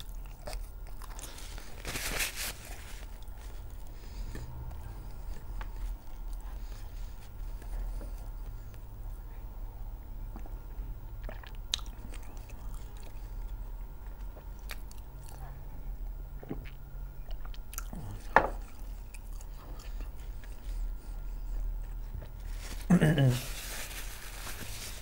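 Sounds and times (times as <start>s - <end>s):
chewing mouth sounds: 11.2s - 15.4s.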